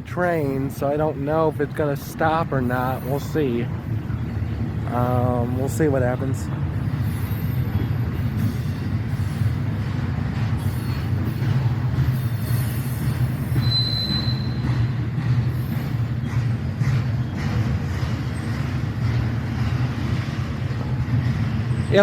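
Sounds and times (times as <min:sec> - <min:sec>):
freight train rumbling: 0:00.0 - 0:22.0
train wheel squeal: 0:05.2 - 0:22.0.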